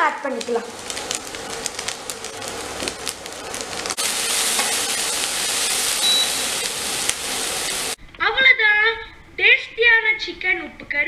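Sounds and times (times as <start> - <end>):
chicken sizzling in a pan: 0.0 - 8.0.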